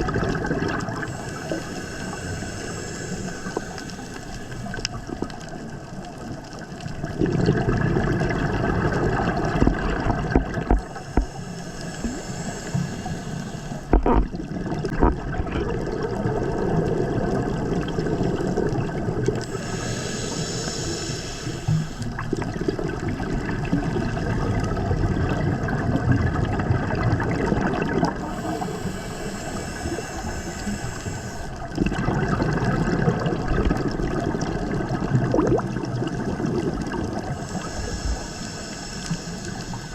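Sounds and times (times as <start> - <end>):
regulator bubbles gurgling: 0.0 - 39.9
regulator breathing hiss: 0.9 - 5.1, 10.8 - 14.0, 19.4 - 22.2, 28.2 - 31.7, 37.2 - 39.9.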